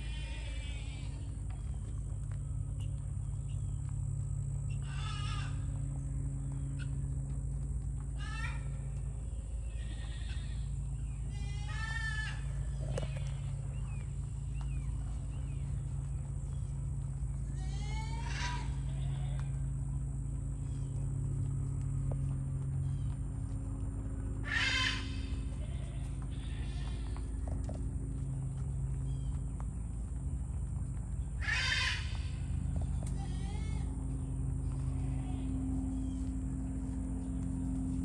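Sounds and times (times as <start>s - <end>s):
low steady hum: 0.0s - 38.0s
animal wavering cry: 24.4s - 27.0s, 31.4s - 32.4s.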